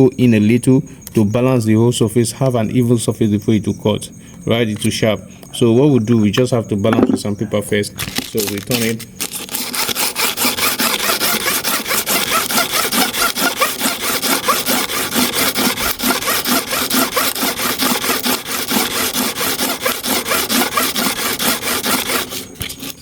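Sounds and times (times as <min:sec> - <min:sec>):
clipper blade rubbing on sandpaper: 0:08.1 - 0:23.0.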